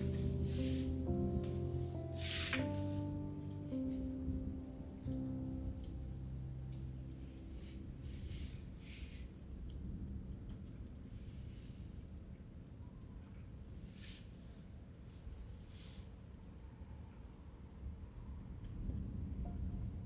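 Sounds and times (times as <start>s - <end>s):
soft rustles: 0.0s - 3.2s
low rumble: 0.0s - 9.0s
crickets chirring: 0.0s - 20.0s.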